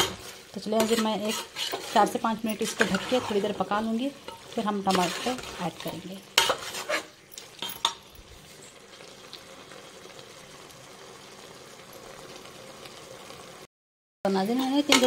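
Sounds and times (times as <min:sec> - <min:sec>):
metal spoon scraping a pot: 0:00.0 - 0:08.8, 0:14.5 - 0:15.0
meat sizzling in a pot: 0:00.0 - 0:13.7, 0:14.3 - 0:15.0.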